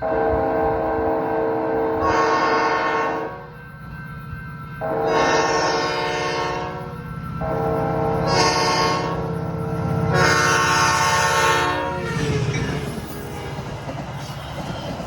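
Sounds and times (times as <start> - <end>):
train horn blasts: 0.0 - 3.6, 4.8 - 12.4
low train rumble: 0.0 - 15.0.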